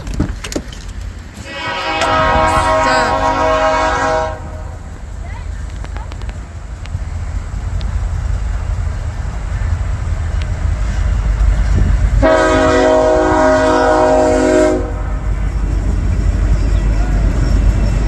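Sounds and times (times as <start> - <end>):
locomotive air horn chord: 1.4 - 4.8, 12.2 - 15.0.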